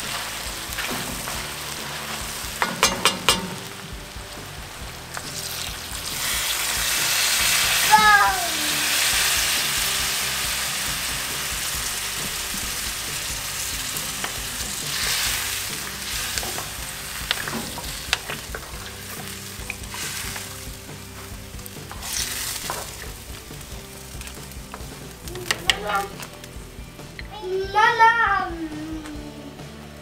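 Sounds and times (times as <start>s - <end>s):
stew sizzling in a pot: 0.0s - 30.0s
wooden spoon knocking on pot: 2.6s - 3.7s.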